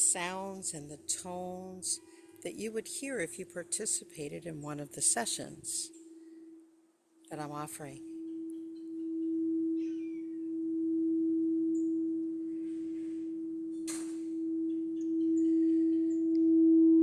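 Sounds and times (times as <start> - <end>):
crystal singing bowl tone: 8.1 - 17.0.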